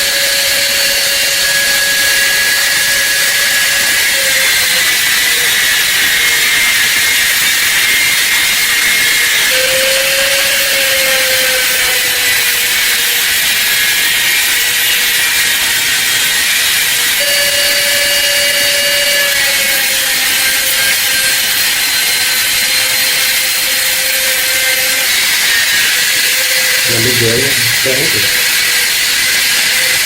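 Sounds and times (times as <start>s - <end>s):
power tool grinding metal: 0.0s - 30.0s.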